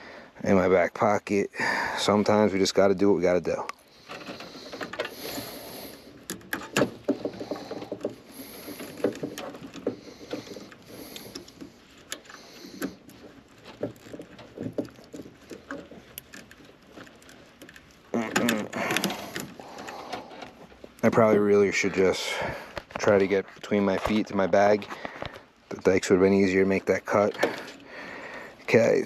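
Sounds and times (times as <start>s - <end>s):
hand tool clicking and scraping: 4.0s - 20.6s.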